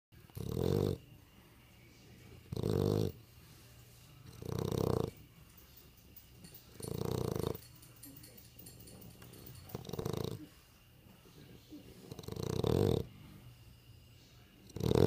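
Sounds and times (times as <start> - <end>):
dog snoring: 0.2 - 1.3, 2.2 - 5.3, 6.7 - 7.8, 8.8 - 10.6, 11.8 - 13.7, 14.6 - 15.0.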